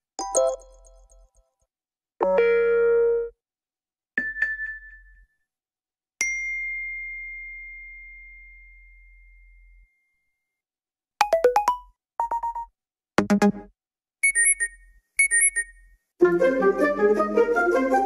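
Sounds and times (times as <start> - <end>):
bell-like ding: 6.2 - 10.2
electronic note jingles: 14.2 - 15.8.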